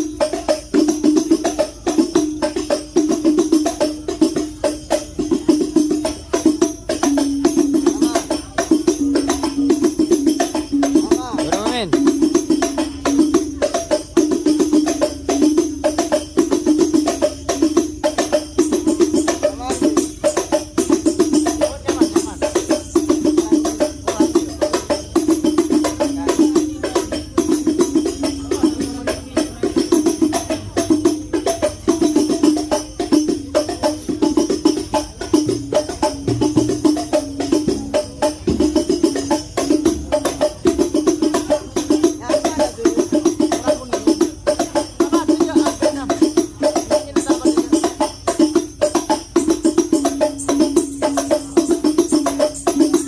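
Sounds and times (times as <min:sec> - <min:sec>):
frame drums and tambourine rhythm: 0:00.0 - 0:53.0.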